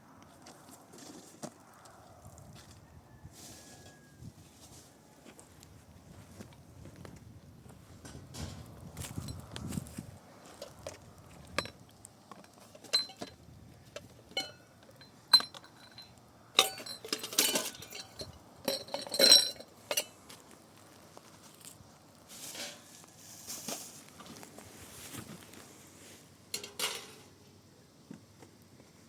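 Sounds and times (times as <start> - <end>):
dishes and utensils clinking: 12.7 - 13.4, 14.0 - 20.2, 26.6 - 27.3.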